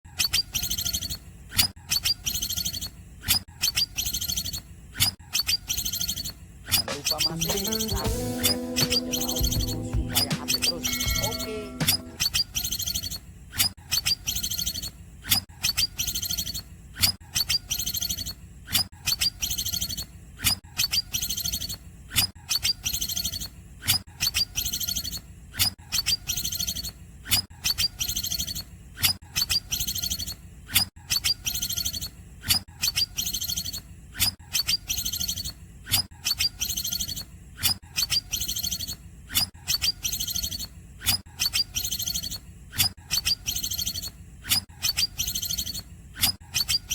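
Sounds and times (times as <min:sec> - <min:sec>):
bird sharp calls and trills: 0:01.9 - 0:13.2.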